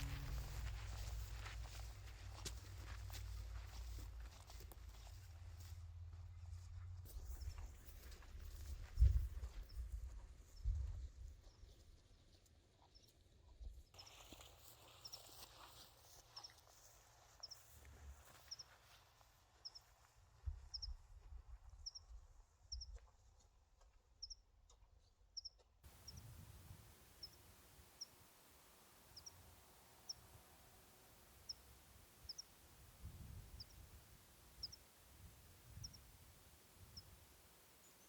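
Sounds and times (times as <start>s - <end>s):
songbird chirping: 0.0s - 4.0s, 25.9s - 38.0s
faint low rumble: 0.0s - 7.0s.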